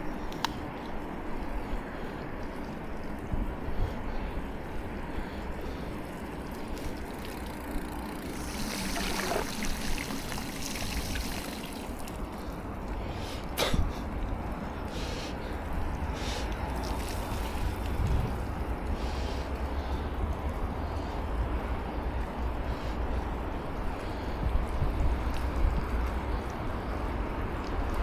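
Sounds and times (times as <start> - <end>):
wind rumble on microphone: 0.0 - 13.1, 15.5 - 28.0
tyres hissing on wet road: 5.0 - 14.0, 14.8 - 21.8.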